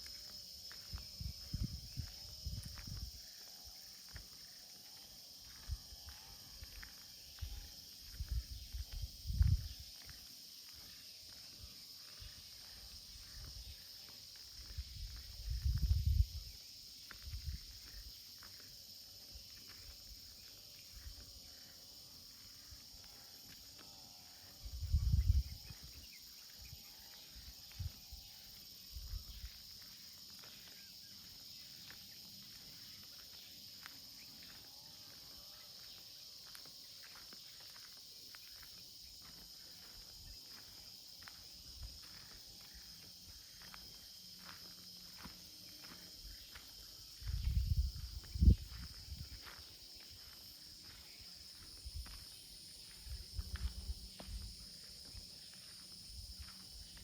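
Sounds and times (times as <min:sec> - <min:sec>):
faint footsteps: 0:00.0 - 0:16.4, 0:17.0 - 0:21.7, 0:28.8 - 0:57.0
insect chorus: 0:00.0 - 0:57.0
wind buffeting microphone: 0:00.9 - 0:03.2, 0:08.1 - 0:09.8, 0:14.7 - 0:16.6, 0:24.6 - 0:26.1, 0:47.2 - 0:49.4.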